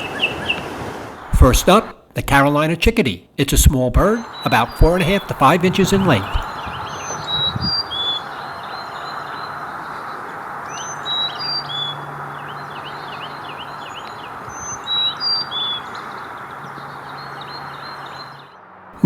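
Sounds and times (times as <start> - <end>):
chickadee whistled song: 4.1 - 9.6, 10.7 - 16.0.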